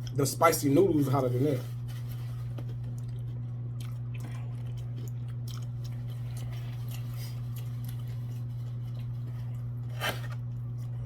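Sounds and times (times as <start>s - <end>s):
low electrical hum: 0.0s - 11.0s
person chewing food: 2.5s - 11.0s.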